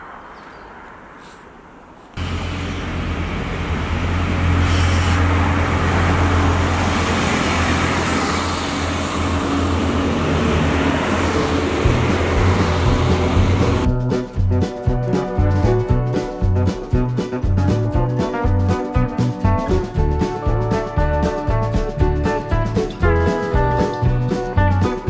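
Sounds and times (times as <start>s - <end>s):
outdoor ambience: 0.0s - 18.7s
diesel train engine drone: 0.0s - 25.0s.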